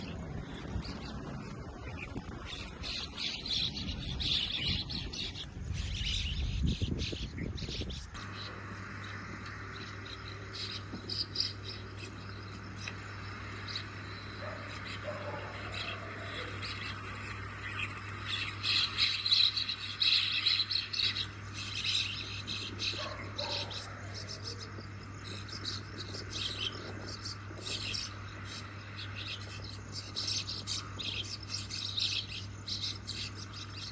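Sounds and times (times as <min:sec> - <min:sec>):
mynas chirping and chattering: 0:08.2 - 0:33.9.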